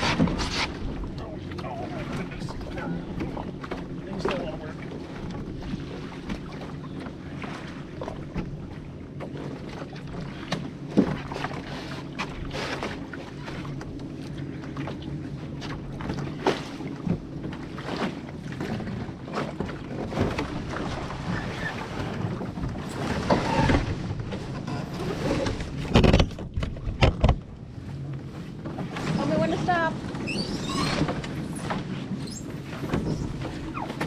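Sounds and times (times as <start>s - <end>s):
paddling water: 0.0s - 34.0s
paddles knocking on hull: 18.6s - 27.6s.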